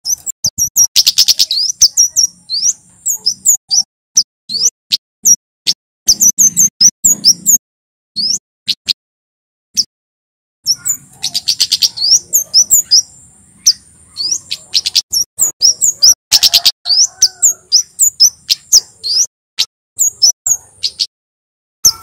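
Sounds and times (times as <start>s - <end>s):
bird singing high chirps: 0.0s - 5.4s, 6.1s - 7.6s, 8.2s - 9.0s, 10.6s - 19.3s, 20.0s - 21.1s.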